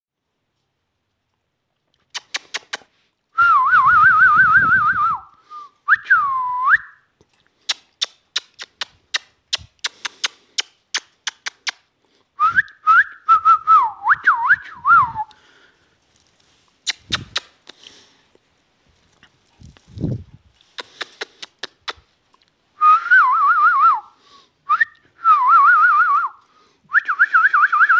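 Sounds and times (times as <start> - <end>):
parrot sharp rapid clicks: 20.8 - 22.0.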